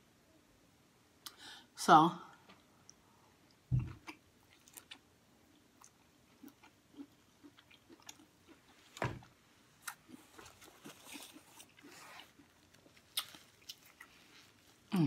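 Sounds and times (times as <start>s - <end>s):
wet chewing mouth sounds: 2.9s - 9.0s, 9.8s - 14.6s
thump: 9.0s - 9.3s.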